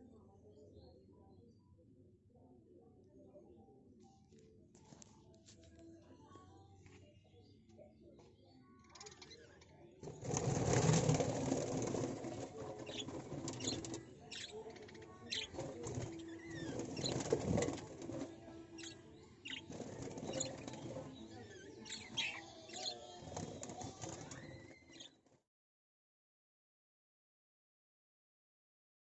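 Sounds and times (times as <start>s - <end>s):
birds chirping: 6.6s - 25.2s.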